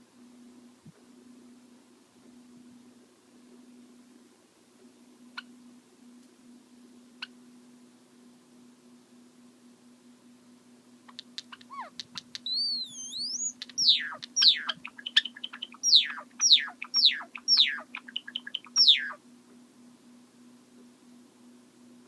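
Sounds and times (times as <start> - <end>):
sparrow singing with clicks: 11.1 - 19.2.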